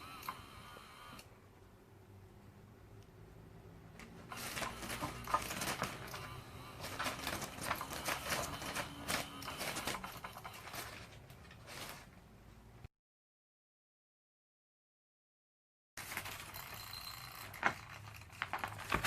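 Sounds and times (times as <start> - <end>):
toy motor hum: 16.2 - 18.2.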